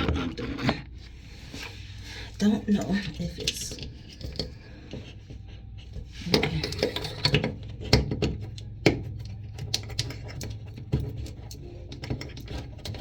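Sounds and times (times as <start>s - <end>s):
toilet tank parts clicking: 2.7s - 5.2s, 6.2s - 13.0s.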